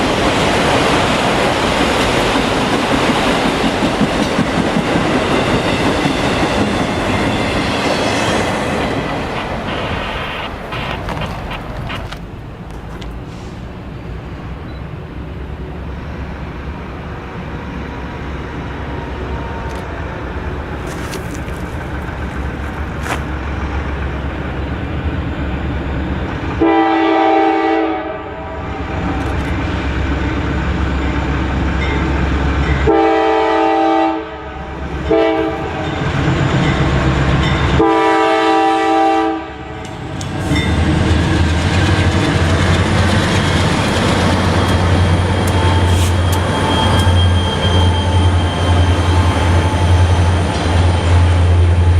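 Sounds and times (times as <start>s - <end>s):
locomotive engine rumble: 0.8s - 26.9s, 34.5s - 51.9s
train air horn: 26.6s - 28.9s, 32.8s - 35.9s, 37.8s - 39.8s, 45.3s - 50.0s.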